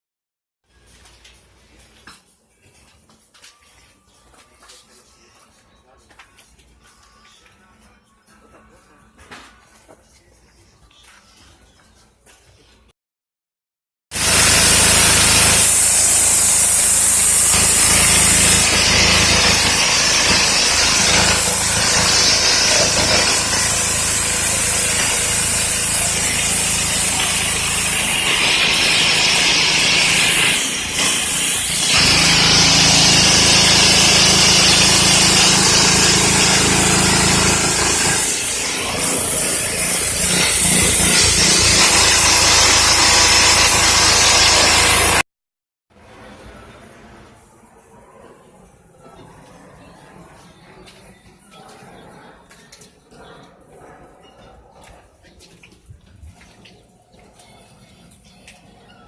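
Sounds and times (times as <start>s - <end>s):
pressure washer spraying water: 14.2s - 45.2s.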